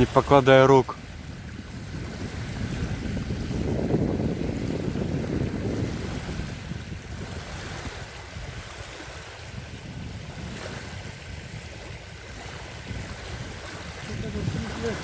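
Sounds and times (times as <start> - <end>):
small waves on a lake: 0.0 - 15.0
wind buffeting microphone: 0.0 - 15.0.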